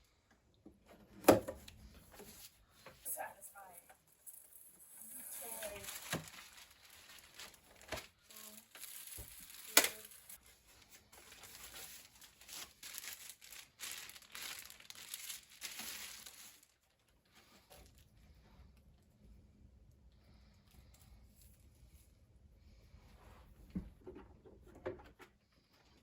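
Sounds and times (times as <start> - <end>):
packaging crinkling and rustling: 4.3 - 18.1.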